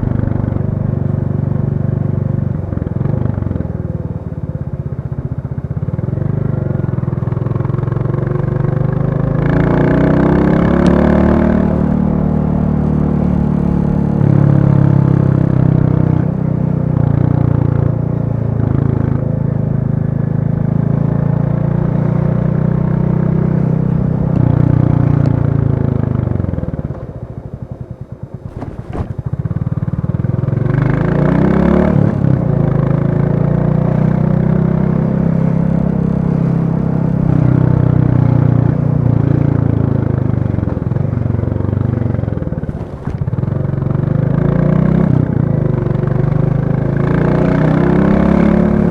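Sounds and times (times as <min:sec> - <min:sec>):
motorcycle engine running: 0:22.3 - 0:30.8, 0:35.5 - 0:48.9.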